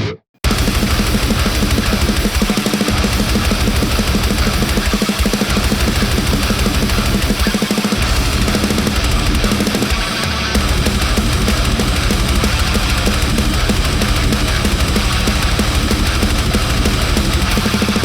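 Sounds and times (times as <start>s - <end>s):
heavy metal music: 0.0s - 18.0s.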